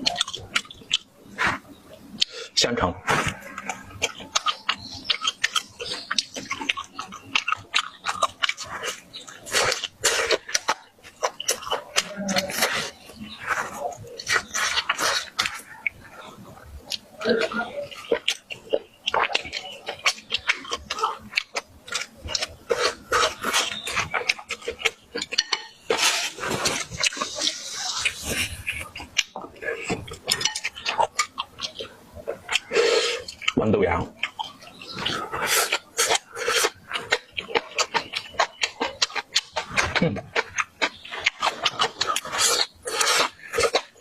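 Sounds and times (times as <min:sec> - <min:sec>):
person chewing and lip-smacking: 0:00.0 - 0:02.4, 0:03.0 - 0:44.0
utensils clinking on dishes: 0:25.3 - 0:26.6.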